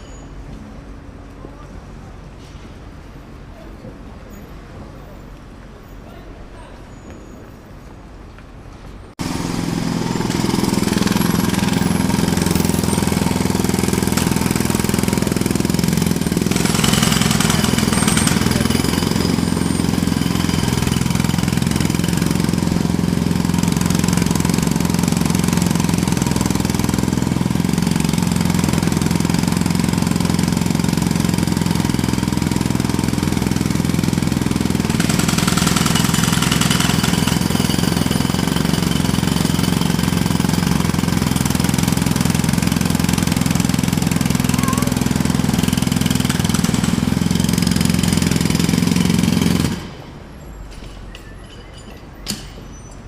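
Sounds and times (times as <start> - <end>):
jackhammer hammering: 9.2 - 50.2.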